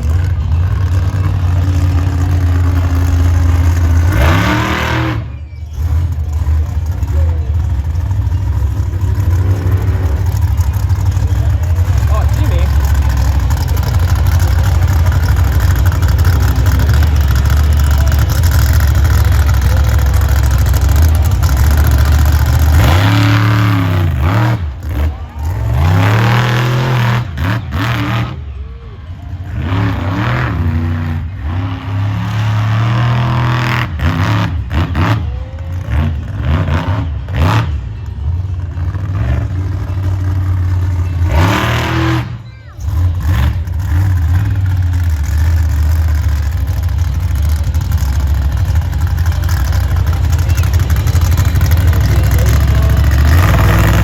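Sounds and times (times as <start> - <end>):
monster truck engine revving: 0.0 - 54.0.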